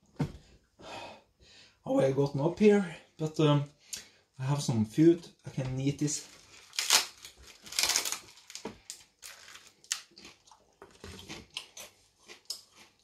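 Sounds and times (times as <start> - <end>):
person chewing crunchy food: 6.4 - 13.0.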